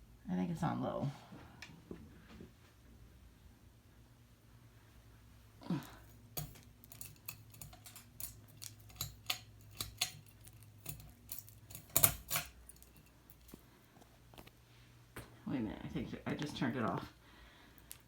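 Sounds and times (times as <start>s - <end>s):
fan pull chain rattling: 6.0s - 13.6s.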